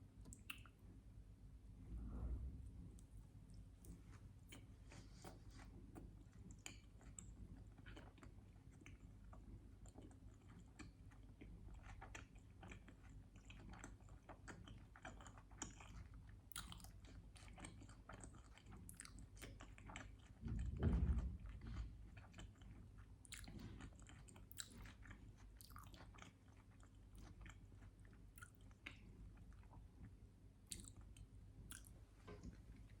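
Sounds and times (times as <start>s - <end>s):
wet sticky chewing: 3.8s - 20.4s, 21.4s - 31.9s
dull thump: 20.4s - 22.0s.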